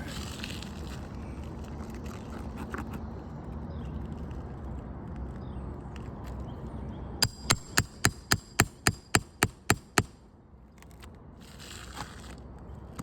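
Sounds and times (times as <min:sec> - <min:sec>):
hammer striking metal tool: 0:07.2 - 0:10.2.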